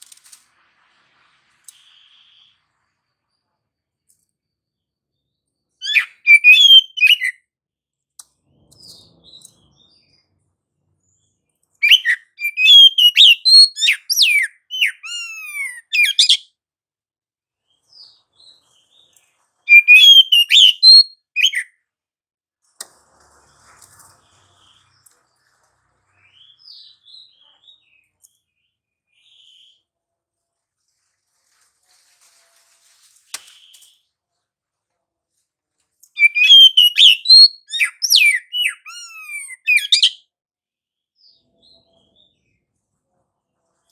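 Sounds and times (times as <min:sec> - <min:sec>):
bird singing whistles: 0:05.8 - 0:07.4, 0:11.8 - 0:16.4, 0:19.7 - 0:21.7, 0:36.2 - 0:40.2.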